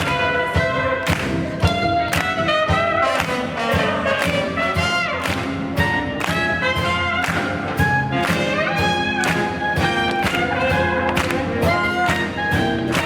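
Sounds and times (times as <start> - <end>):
swing jazz band playing: 0.0 - 13.0
trombone: 0.0 - 13.0
trumpet: 0.0 - 13.0.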